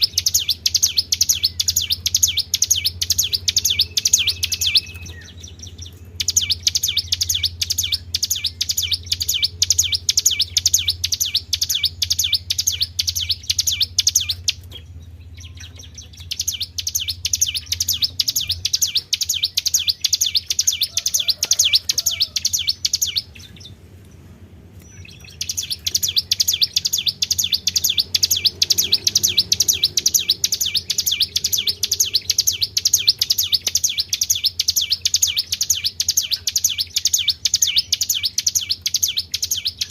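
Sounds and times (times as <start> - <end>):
low steady hum: 0.0 - 39.9
songbird trilling song: 0.0 - 39.9.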